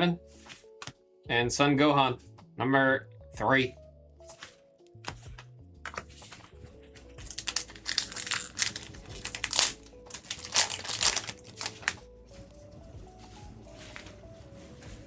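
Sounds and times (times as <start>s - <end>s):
quiet background music: 0.0s - 15.0s
foil wrapper crinkling: 6.9s - 12.1s.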